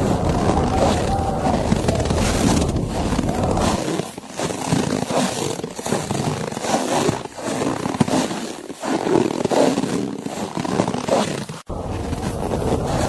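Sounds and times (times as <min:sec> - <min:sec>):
footsteps crunching through snow: 0:00.0 - 0:13.0.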